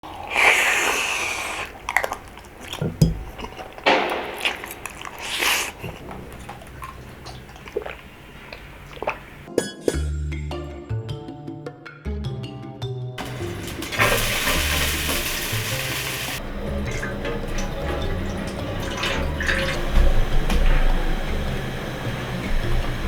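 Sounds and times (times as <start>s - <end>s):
noodle slurping: 0.0s - 9.5s
chewing with small clicks: 0.2s - 9.5s
music: 9.5s - 23.0s.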